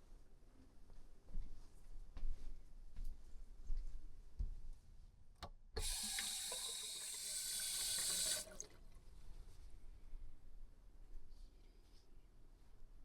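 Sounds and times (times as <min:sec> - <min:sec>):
water running: 0:05.8 - 0:09.0.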